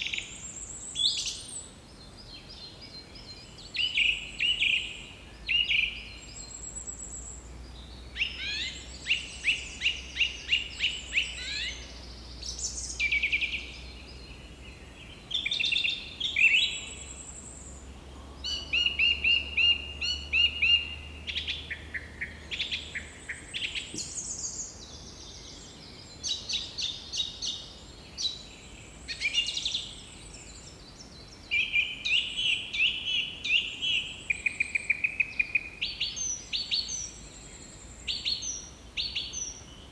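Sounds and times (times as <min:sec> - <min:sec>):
birds singing trills and chirps: 0:00.0 - 0:39.9.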